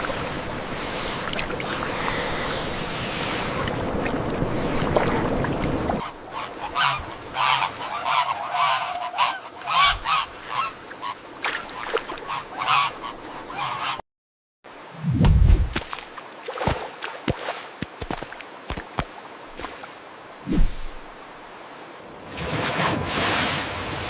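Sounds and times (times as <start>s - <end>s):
rushing noise like surf and wind: 0.0s - 8.6s, 18.6s - 24.0s.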